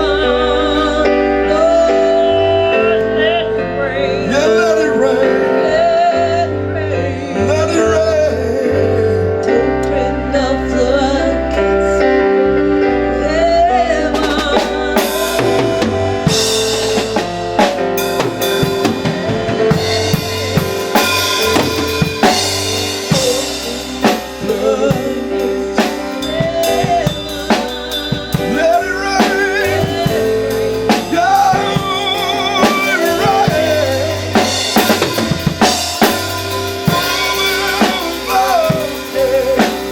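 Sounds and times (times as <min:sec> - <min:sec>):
bass line: 0:00.0 - 0:39.9
keyboard chords: 0:00.0 - 0:39.9
person singing: 0:00.0 - 0:39.9
drum kit beat: 0:14.1 - 0:39.9.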